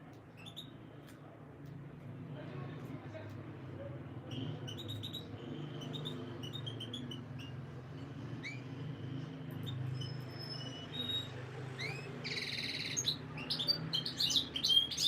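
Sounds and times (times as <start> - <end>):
canaries chirping: 0.4 - 0.8, 4.2 - 15.0.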